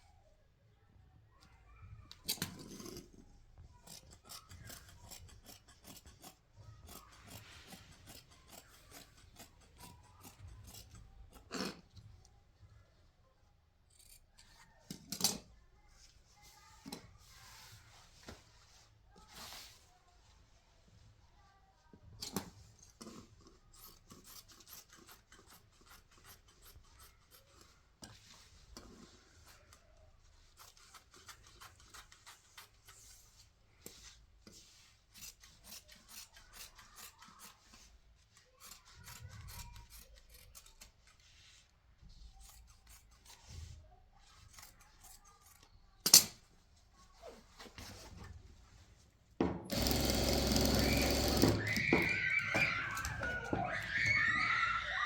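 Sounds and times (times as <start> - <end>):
hand rubbing and scraping surface: 2.4 - 11.9, 16.0 - 21.3, 24.1 - 39.9, 40.6 - 45.4, 46.8 - 49.2.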